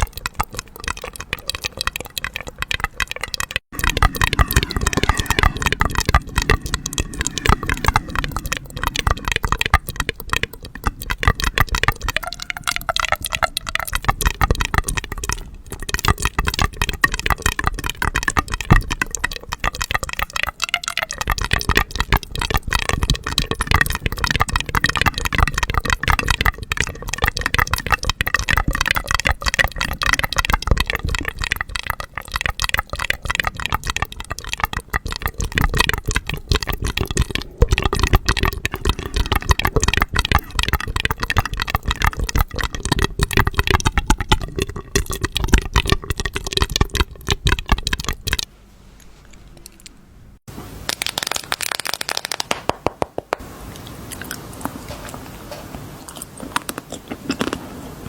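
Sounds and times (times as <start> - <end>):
hard candies rattling together: 50.9 - 52.8.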